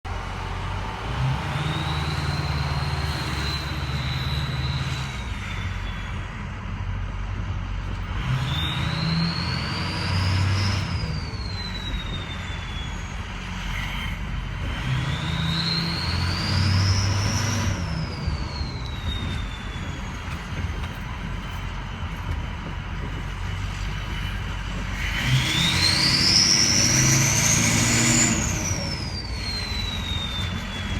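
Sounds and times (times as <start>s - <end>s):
diesel engine revving: 0.0s - 30.9s
turbo whistle: 8.5s - 14.1s, 25.2s - 30.9s.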